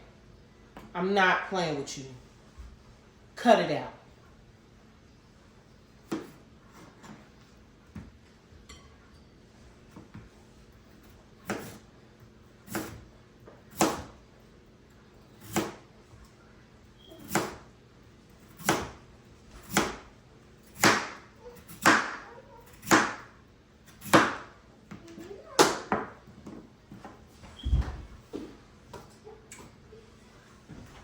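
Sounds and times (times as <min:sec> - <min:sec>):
knife cutting potatoes on board: 0:11.4 - 0:11.9, 0:12.7 - 0:13.0, 0:13.6 - 0:14.2, 0:15.4 - 0:15.9, 0:17.2 - 0:17.7, 0:18.5 - 0:23.3, 0:23.9 - 0:24.5.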